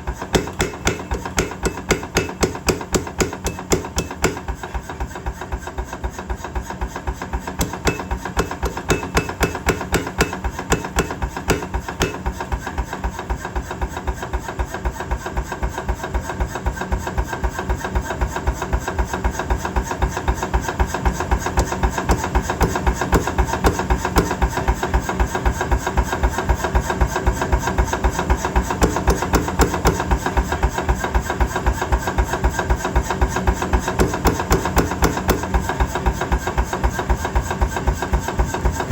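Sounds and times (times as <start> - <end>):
power hammer blows: 0.3 - 4.6, 7.6 - 12.6, 21.5 - 24.8, 28.7 - 30.4, 33.8 - 35.9
machine hum: 7.6 - 12.6.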